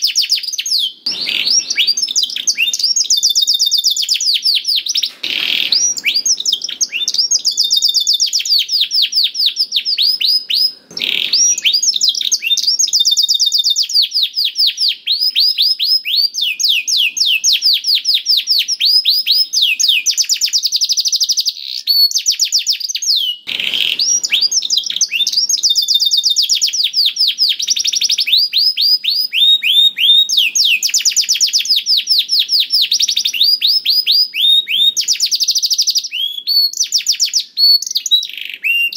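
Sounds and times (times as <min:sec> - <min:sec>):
canary singing fast trills: 0:00.0 - 0:38.9.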